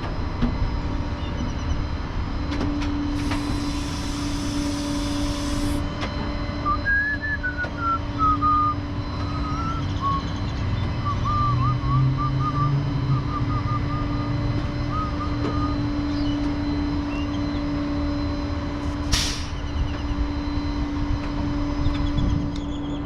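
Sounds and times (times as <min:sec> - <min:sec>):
truck engine humming: 0:00.0 - 0:23.0
short sharp hiss: 0:19.1 - 0:19.6.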